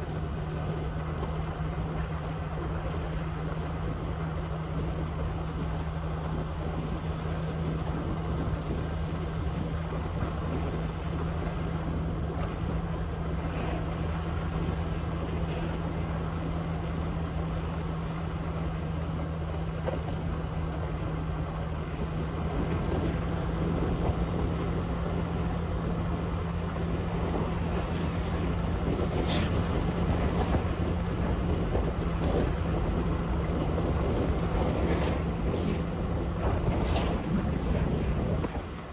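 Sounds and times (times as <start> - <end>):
motorbike engine hum: 0.0 - 38.9
wind noise on microphone: 21.8 - 38.9.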